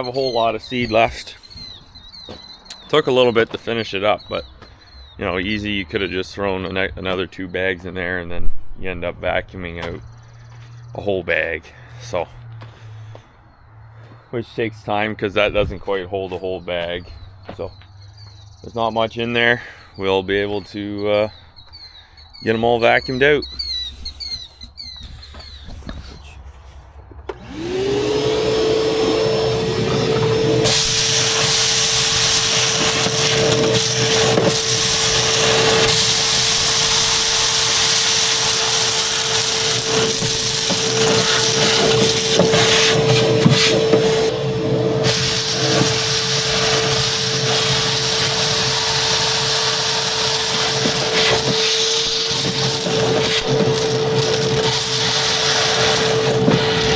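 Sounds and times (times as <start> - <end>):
vacuum motor whine and rush: 27.3 - 56.9
seed rattling up hose: 27.4 - 44.3, 44.9 - 56.9.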